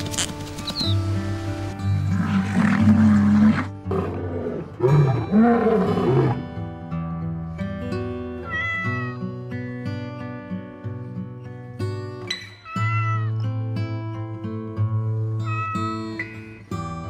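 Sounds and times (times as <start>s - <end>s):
acoustic guitar music: 0.0s - 17.0s
lion roaring: 2.1s - 6.4s.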